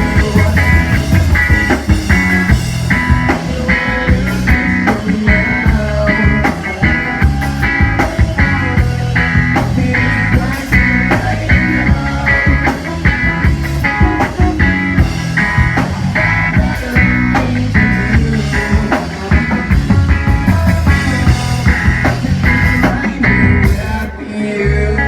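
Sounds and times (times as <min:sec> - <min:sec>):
guitar chord stabs: 0:00.0 - 0:11.4
rock band playing: 0:00.0 - 0:25.0.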